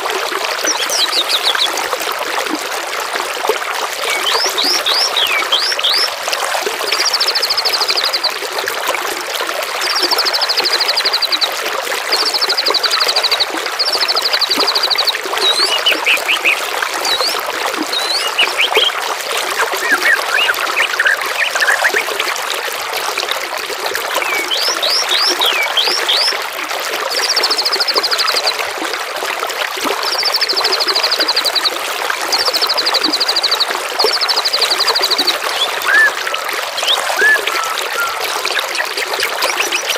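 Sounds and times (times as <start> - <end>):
water trickling: 0.0 - 39.9
songbirds calling: 0.6 - 1.8, 4.0 - 6.1, 12.2 - 22.2, 24.2 - 26.4, 32.4 - 39.9.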